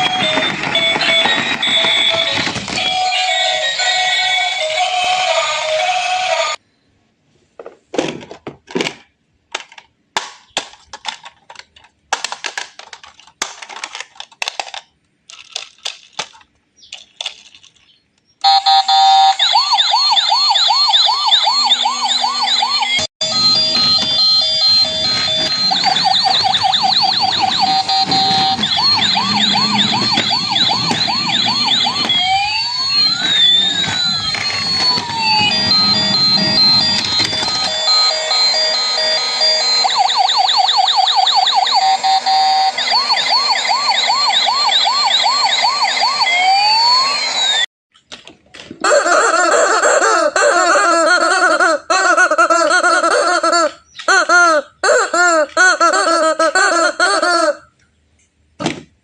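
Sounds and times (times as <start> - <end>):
warbling electronic sirens: 0.0 - 4.5, 18.4 - 47.7.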